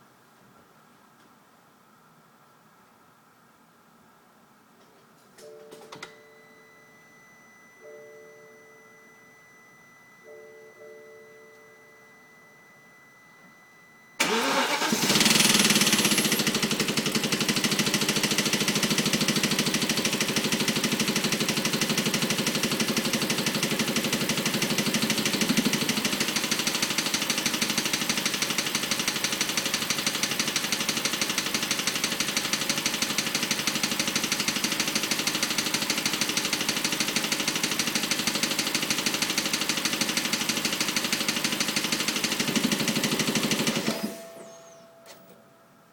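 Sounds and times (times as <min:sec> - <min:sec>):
fast engine clicking: 0:14.2 - 0:43.9
car engine starting and idling: 0:14.2 - 0:45.6.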